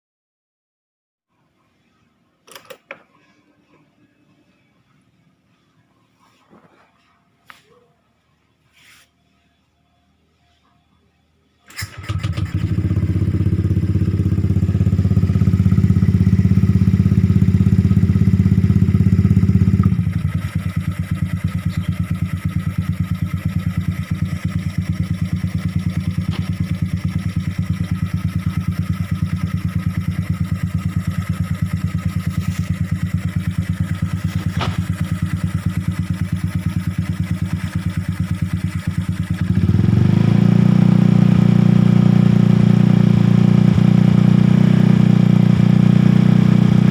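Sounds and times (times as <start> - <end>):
motorcycle engine idling and revving: 11.7 - 46.9.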